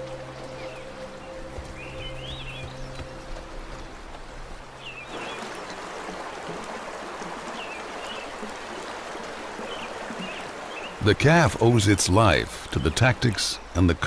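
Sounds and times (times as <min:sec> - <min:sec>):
low sustained music tones: 0:00.0 - 0:06.4
river water rushing: 0:00.0 - 0:14.0.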